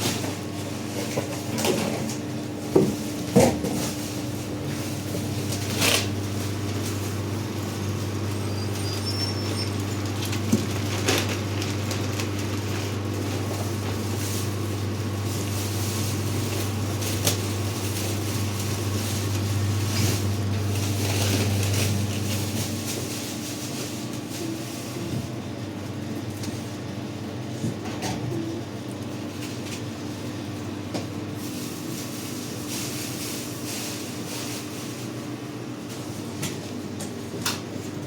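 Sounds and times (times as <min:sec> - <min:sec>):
low machine hum: 0:00.0 - 0:38.0.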